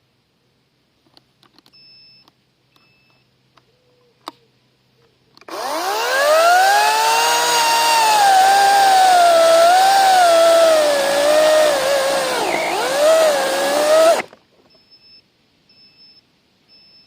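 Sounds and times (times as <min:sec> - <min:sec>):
electric chainsaw motor whine: 0:05.5 - 0:14.4
short high beeps: 0:14.8 - 0:17.0.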